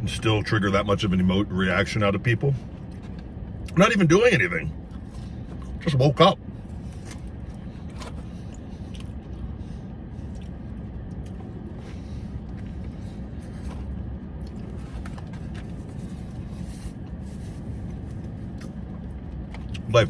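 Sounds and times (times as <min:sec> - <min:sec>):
low vehicle rumble: 0:00.0 - 0:20.0.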